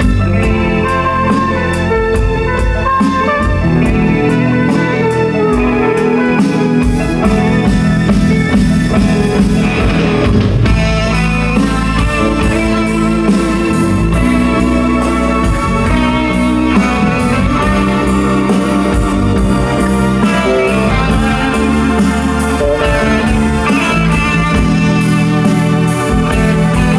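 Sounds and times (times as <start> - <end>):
electric guitar tones: 0.0 - 26.9
organ tones: 0.0 - 26.9
pulse of repeated notes: 0.0 - 26.9.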